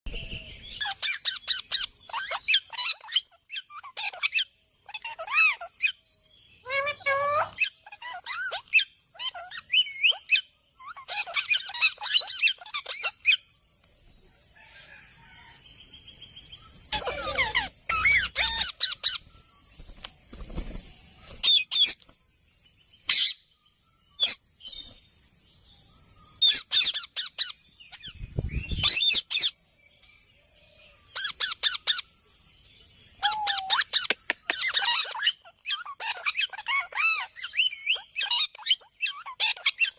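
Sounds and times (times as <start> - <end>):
parrot screeching and chattering: 0.8 - 6.0, 6.6 - 13.4, 16.9 - 19.2, 26.4 - 27.6, 33.2 - 39.9.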